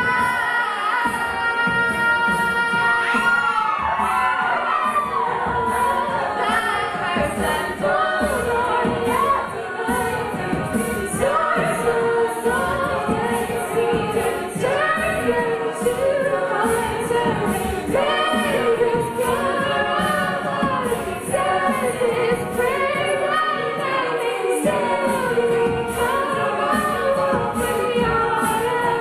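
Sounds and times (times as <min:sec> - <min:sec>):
vocal percussion beat: 0:00.0 - 0:29.0
women singing in harmony: 0:00.0 - 0:29.0.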